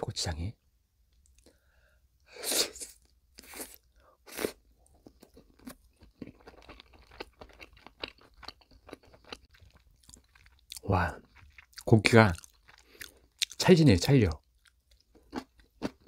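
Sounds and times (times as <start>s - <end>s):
chewing: 4.8s - 13.6s.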